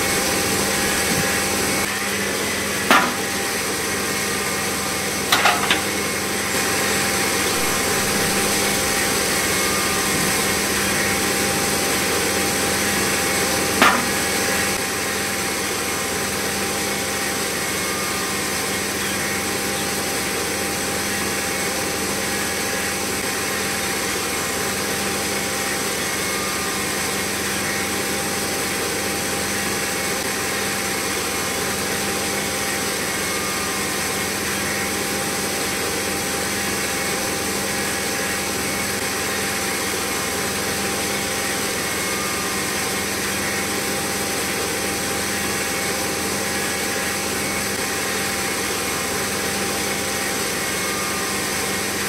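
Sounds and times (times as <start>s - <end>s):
small motor whining: 0.0s - 52.0s.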